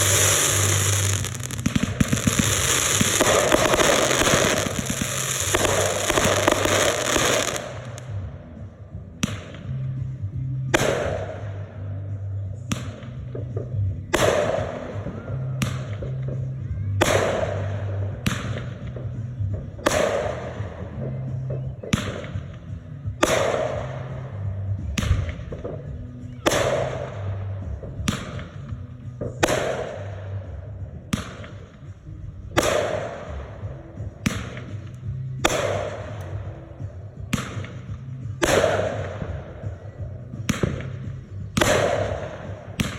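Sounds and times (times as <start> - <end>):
fireworks bangs with crackle: 0.0 - 8.1, 37.3 - 42.9
background music with bass: 0.0 - 42.9.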